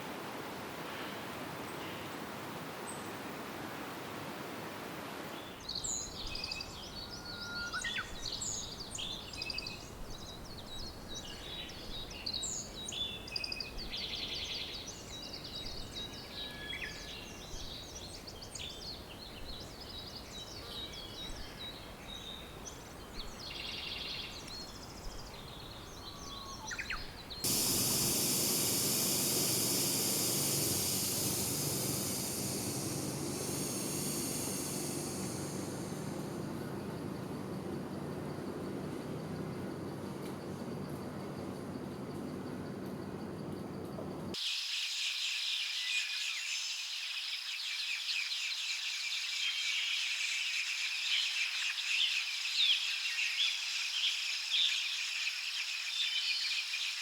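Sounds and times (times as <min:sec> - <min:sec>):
faint background hiss: 0:00.0 - 0:57.0
small birds chirping: 0:05.6 - 0:39.6
steady rushing noise: 0:27.4 - 0:36.6.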